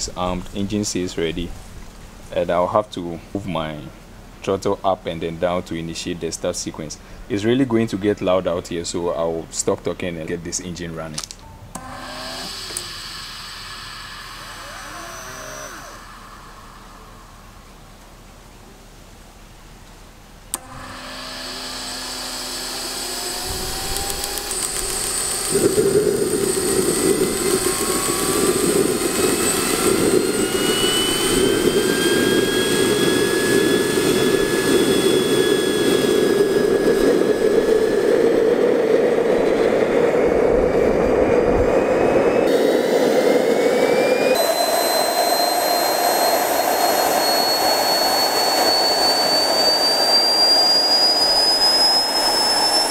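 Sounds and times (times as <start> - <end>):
jet turbine whine: 0.0 - 52.9
loud rushing of burner: 11.8 - 18.6, 20.5 - 52.9.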